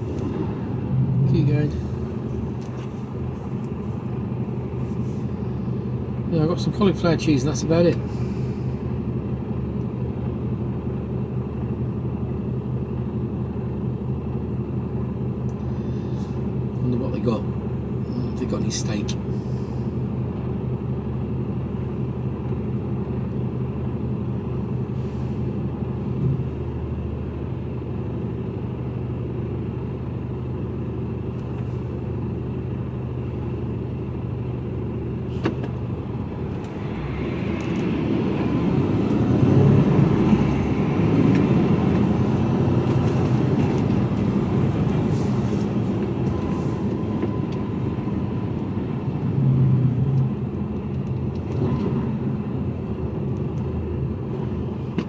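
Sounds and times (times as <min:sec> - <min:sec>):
loud rumble: 0:00.0 - 0:04.0
truck engine drone from cab: 0:00.0 - 0:55.0.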